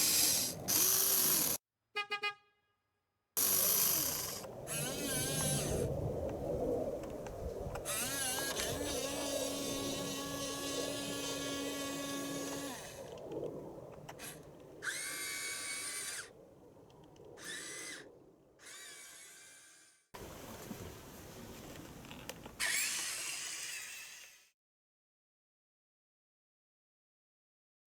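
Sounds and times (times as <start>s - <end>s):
small electric motors whining: 0.0s - 1.6s, 3.4s - 6.4s, 7.2s - 16.3s, 17.2s - 20.1s, 22.1s - 24.5s.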